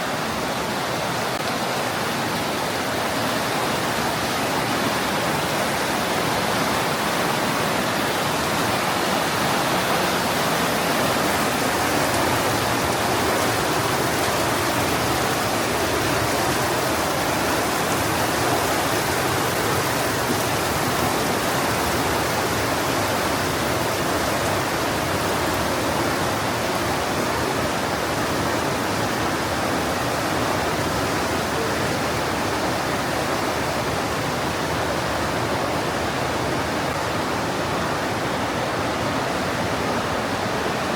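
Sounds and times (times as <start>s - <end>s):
mountain stream rushing: 0.0s - 40.9s.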